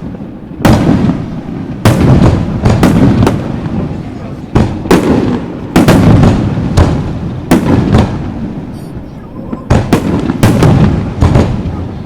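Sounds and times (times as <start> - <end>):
firework shells booming: 0.0 - 12.0.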